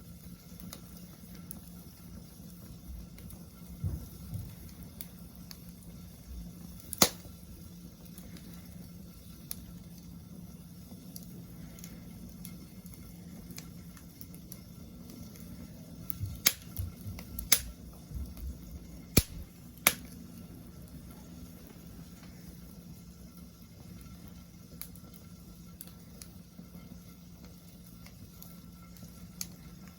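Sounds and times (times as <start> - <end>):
wood fire crackling: 0.0 - 29.9
loud fire pops: 3.1 - 8.5, 11.1 - 20.3.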